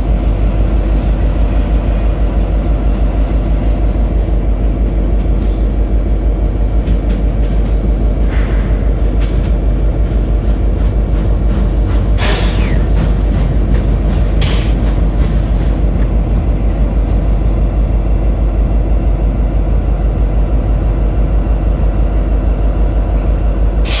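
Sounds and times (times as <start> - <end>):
train wheels rumbling on rail: 0.0 - 24.0
short hiss: 14.4 - 14.8.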